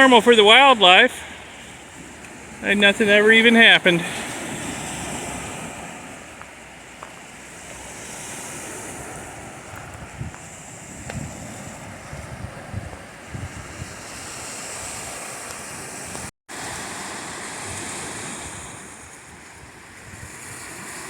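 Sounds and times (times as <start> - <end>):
surf washing onto beach: 0.0 - 21.0
wind buffeting microphone: 4.0 - 16.3, 17.6 - 21.0.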